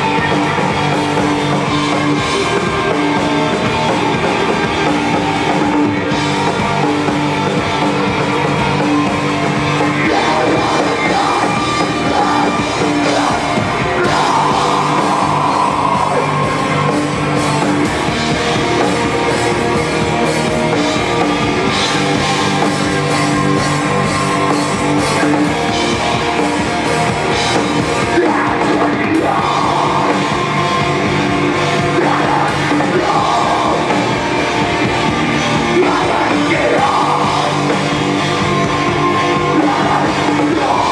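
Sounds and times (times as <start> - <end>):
person singing: 0.0 - 17.8, 21.0 - 40.9
rock band playing: 0.0 - 40.9.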